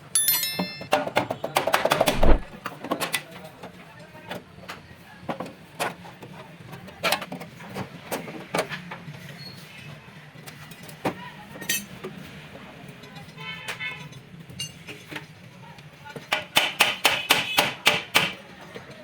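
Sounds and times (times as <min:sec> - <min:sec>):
short ringing tone: 0:00.0 - 0:01.0.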